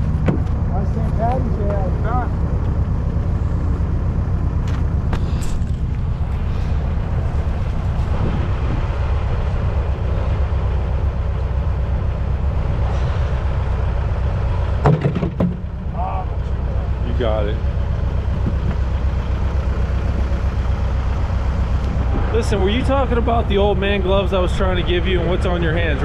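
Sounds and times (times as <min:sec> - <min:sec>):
engine rumbling: 0:00.0 - 0:26.0.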